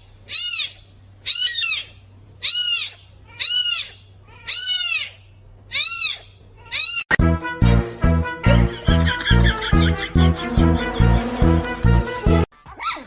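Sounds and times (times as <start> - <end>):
kitten mewing: 0.3 - 7.2.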